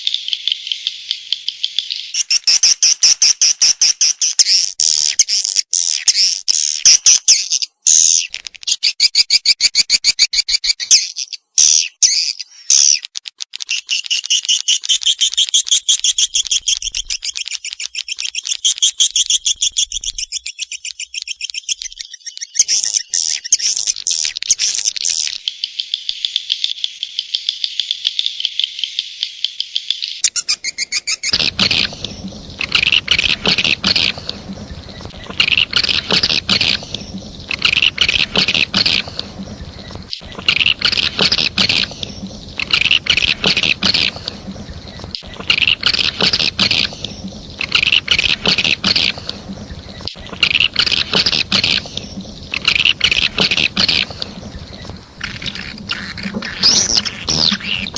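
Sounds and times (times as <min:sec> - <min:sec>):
rustling background: 0:31.3 - 0:57.9
swiftlet clicking twitters: 0:31.3 - 0:57.9.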